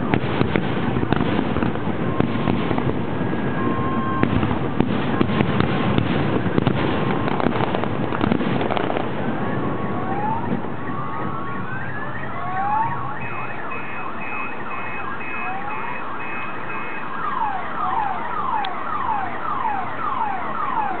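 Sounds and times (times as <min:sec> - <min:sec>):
whistling fireworks: 0:00.0 - 0:21.0
sharp crack: 0:04.2 - 0:09.3.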